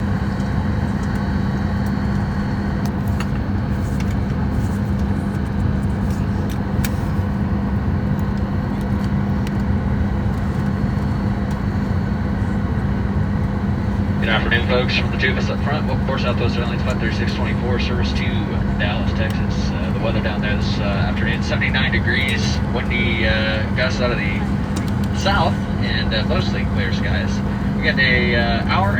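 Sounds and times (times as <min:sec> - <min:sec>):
air-conditioning airflow: 0:00.0 - 0:28.9
constant low drone: 0:00.0 - 0:28.9.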